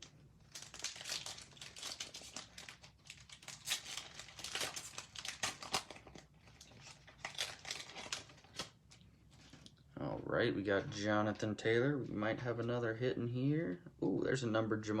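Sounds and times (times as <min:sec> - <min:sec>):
wrapper crinkling and tearing: 0:00.0 - 0:09.7.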